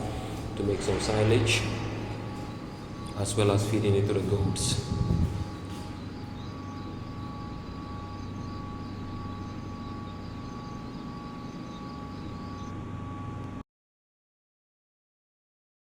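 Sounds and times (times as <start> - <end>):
faint steady high tones: 0.0 - 13.5.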